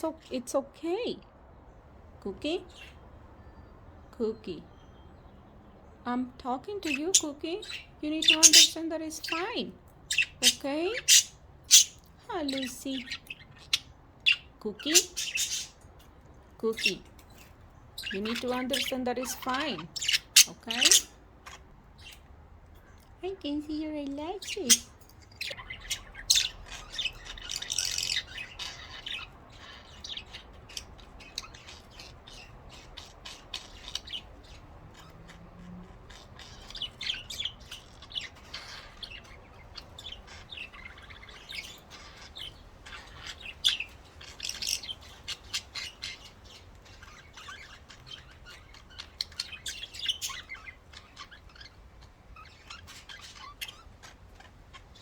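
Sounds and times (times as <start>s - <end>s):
budgerigars chirping and chattering: 6.7s - 55.0s.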